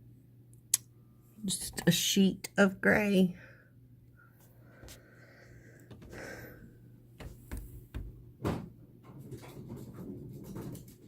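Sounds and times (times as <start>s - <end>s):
low steady hum: 0.0s - 9.1s
soft knocks and thumps: 5.9s - 6.3s, 7.2s - 11.0s.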